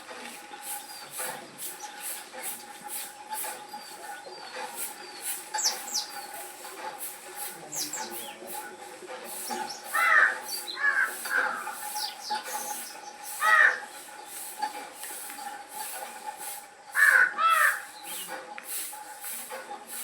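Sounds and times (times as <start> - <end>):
high bird chirps: 5.0 - 6.4, 9.7 - 13.9
crows cawing: 9.9 - 11.9, 13.3 - 14.0, 16.9 - 18.0.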